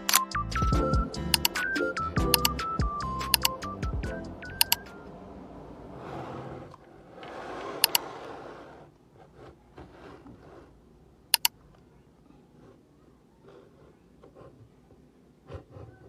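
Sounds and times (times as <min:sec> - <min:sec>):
sharp double clicks: 0:01.2 - 0:03.7, 0:04.5 - 0:05.0, 0:11.3 - 0:11.6.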